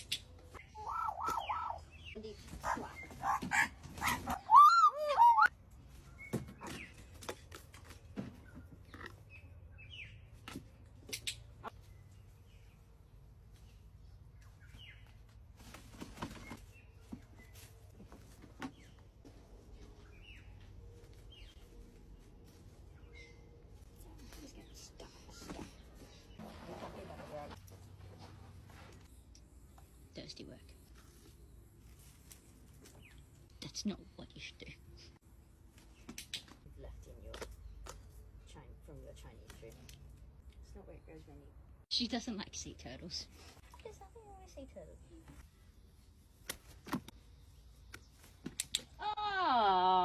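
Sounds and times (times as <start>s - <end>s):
birds squawking: 0.6s - 5.5s.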